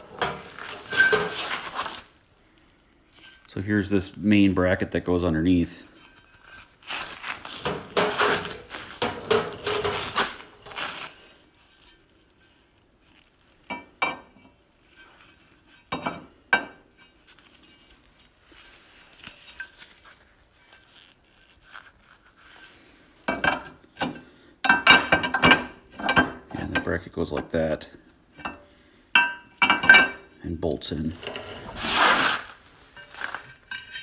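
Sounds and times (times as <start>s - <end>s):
metal brackets clanking: 0.0s - 2.0s, 7.2s - 11.1s.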